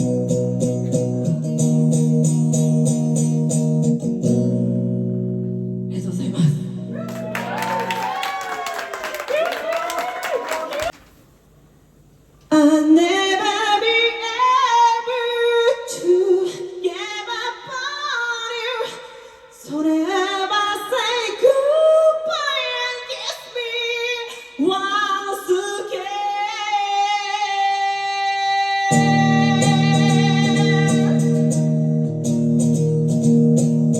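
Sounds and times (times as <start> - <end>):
woman singing: 12.5 - 31.7.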